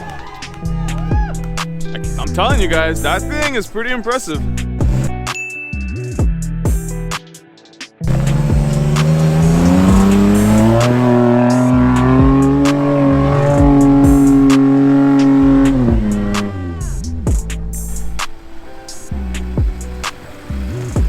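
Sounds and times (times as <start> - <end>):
background music beat: 0.0 - 21.0
engine revving under load: 8.0 - 21.0.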